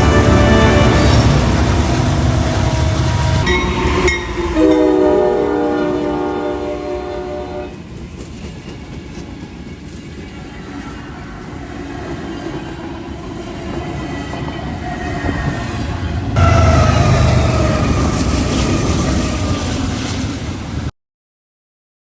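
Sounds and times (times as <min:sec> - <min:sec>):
locomotive air horn chord: 0:00.0 - 0:07.8, 0:16.4 - 0:18.7
passing train rumble: 0:00.0 - 0:20.9.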